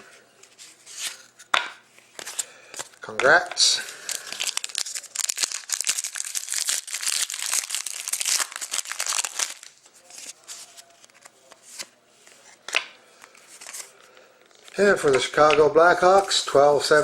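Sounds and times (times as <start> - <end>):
cards being handled: 0.4 - 17.0
plastic wrapper crinkling and tearing: 3.8 - 11.3.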